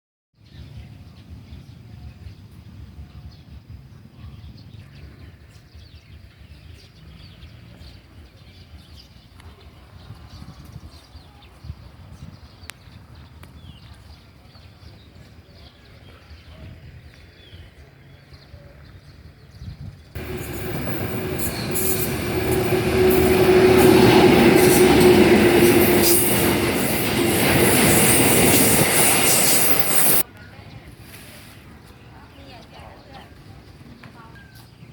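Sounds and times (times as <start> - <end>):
birds chirping: 20.1 - 30.8
steady low rumble: 20.2 - 30.2
train passing with clacks: 20.2 - 30.2.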